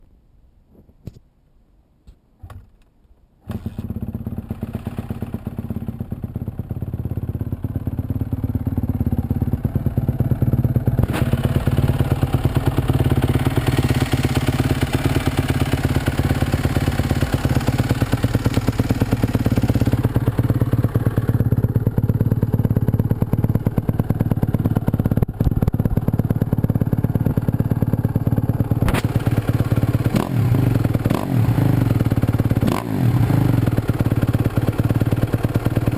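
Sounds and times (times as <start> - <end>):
motorcycle engine starting and idling: 3.4 - 35.9.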